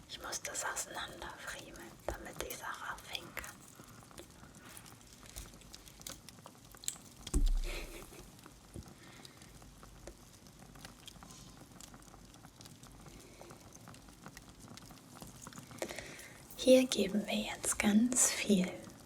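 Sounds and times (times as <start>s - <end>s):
ornament clicking and rustling: 0.9s - 8.9s
low thump: 7.4s - 8.1s.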